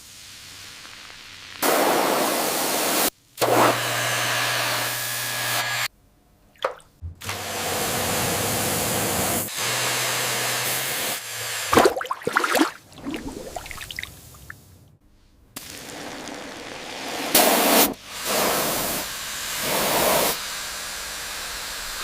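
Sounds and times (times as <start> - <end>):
loud hiss of air jet: 0.0 - 3.7, 7.2 - 11.2, 15.5 - 22.0.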